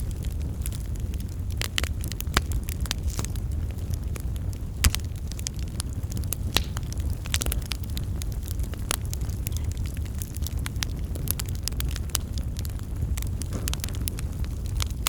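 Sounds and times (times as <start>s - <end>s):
fire crackles and pops: 0.0s - 15.0s
wood fire rumbling: 0.0s - 15.0s.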